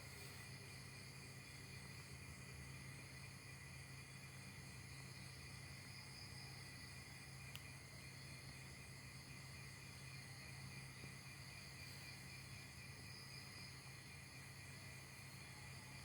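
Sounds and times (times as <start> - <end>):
faint high-pitched hiss: 0.0 - 16.0.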